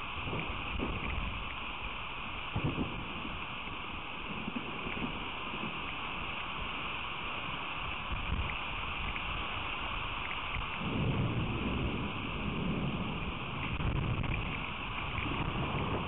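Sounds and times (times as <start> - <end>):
rain falling: 0.0 - 16.0
low rumble: 10.6 - 16.0.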